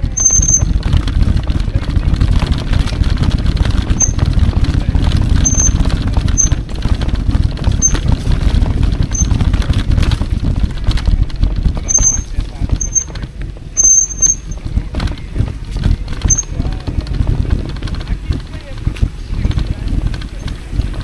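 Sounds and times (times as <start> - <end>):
high-pitched squeaks: 0.0 - 0.9, 3.9 - 4.3, 5.3 - 6.7, 9.1 - 9.5, 11.8 - 13.2, 13.8 - 14.8, 15.8 - 16.8
bike riding rumble: 0.0 - 21.0
wind buffeting microphone: 0.0 - 21.0.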